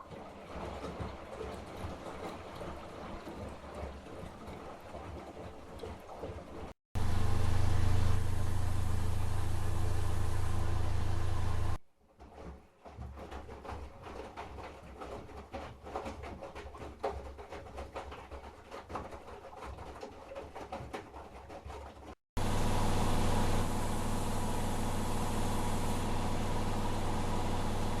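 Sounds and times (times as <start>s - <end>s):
washing machine spin hum and whine: 0.0s - 11.8s, 22.4s - 28.0s.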